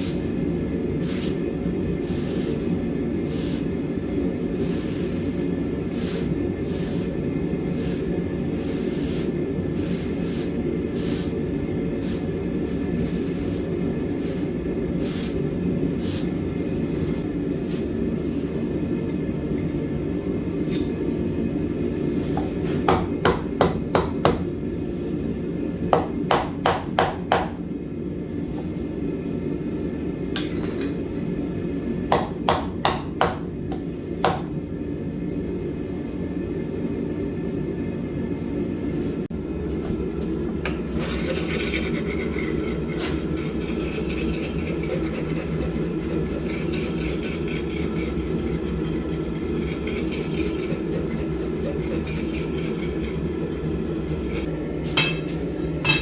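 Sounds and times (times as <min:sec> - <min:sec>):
grainy hissing sound: 0:07.7 - 0:11.4
hammer striking steel on anvil: 0:55.0 - 0:56.0.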